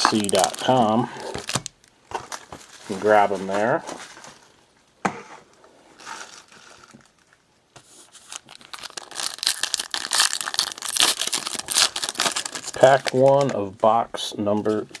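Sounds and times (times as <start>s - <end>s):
plastic wrapper tearing and crinkling: 0.0s - 4.6s, 6.0s - 7.4s, 8.2s - 13.7s.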